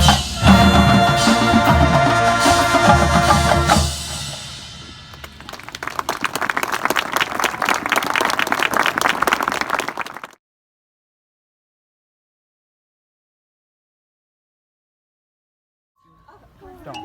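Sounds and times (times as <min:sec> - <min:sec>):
marching band with drums: 0:00.0 - 0:07.9
crowd applauding: 0:05.1 - 0:10.4.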